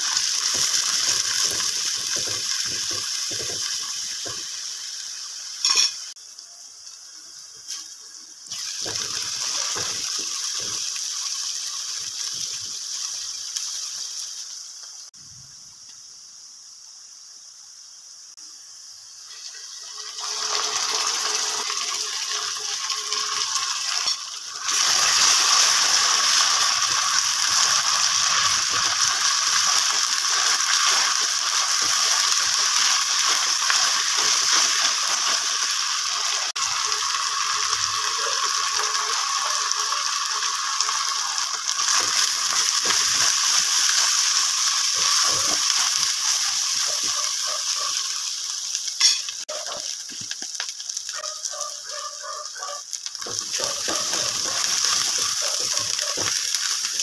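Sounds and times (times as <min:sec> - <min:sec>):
food sizzling in hot oil: 0:00.0 - 0:57.0
spoon scraping a pan: 0:53.2 - 0:56.6.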